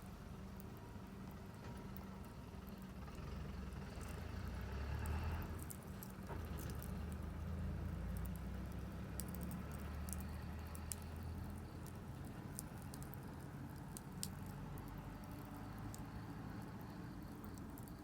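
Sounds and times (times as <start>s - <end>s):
campfire crackling and popping: 3.9s - 18.0s.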